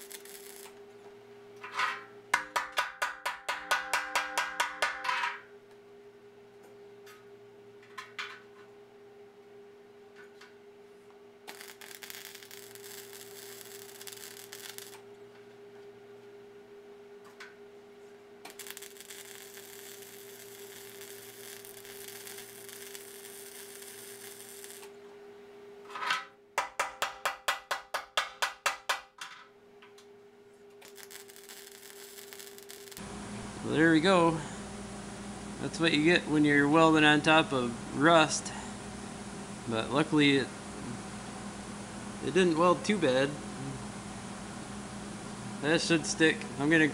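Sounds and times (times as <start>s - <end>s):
arc welding crackle: 0.0s - 0.8s, 11.4s - 15.1s, 18.4s - 25.0s, 30.8s - 34.6s
welder hum: 0.0s - 1.7s, 10.4s - 16.3s, 17.3s - 25.2s, 29.9s - 46.9s.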